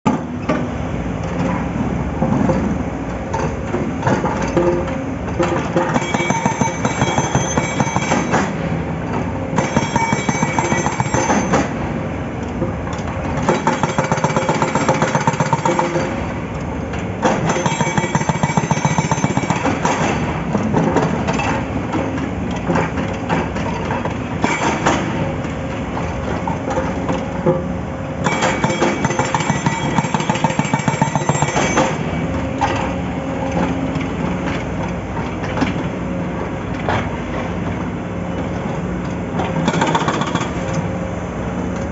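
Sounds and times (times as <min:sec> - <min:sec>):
diesel engine under load: 0:00.1 - 0:41.9
hydraulic breaker hammering rock: 0:04.0 - 0:08.7, 0:09.5 - 0:11.8, 0:13.4 - 0:16.3, 0:17.2 - 0:22.0, 0:22.7 - 0:25.3, 0:28.2 - 0:32.9, 0:39.4 - 0:40.7.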